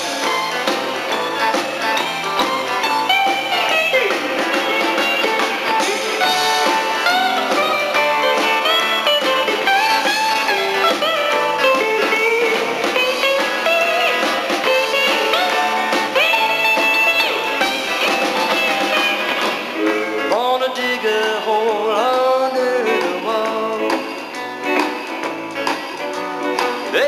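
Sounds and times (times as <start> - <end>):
lead guitar solo with bending notes: 0.0 - 20.3
country-rock band playing: 0.0 - 27.0.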